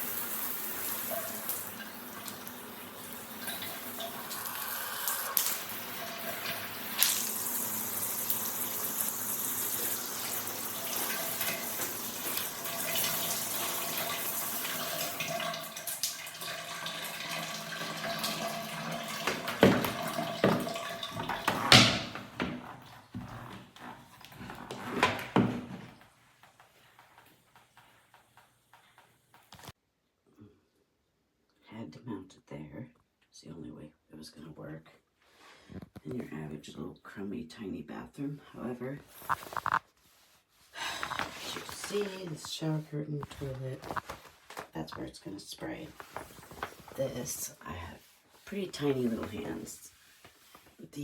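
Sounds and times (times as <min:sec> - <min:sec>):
shower water spraying: 0:00.0 - 0:22.8.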